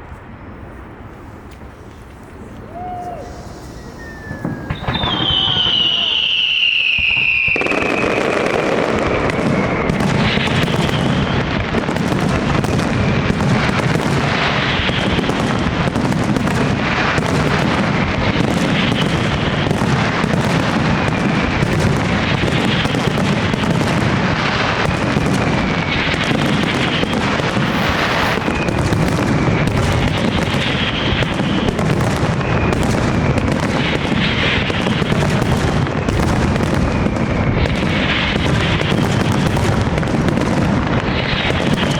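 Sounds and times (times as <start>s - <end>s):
falling firework whistles: 2.4s - 11.6s, 25.2s - 33.7s
fireworks bursts and bangs: 2.7s - 41.9s.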